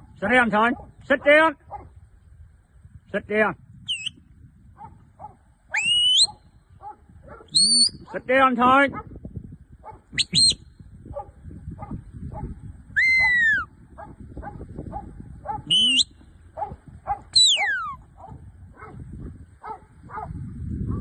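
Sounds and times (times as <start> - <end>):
dog whining and yelping: 13.0 - 13.7, 17.4 - 18.0.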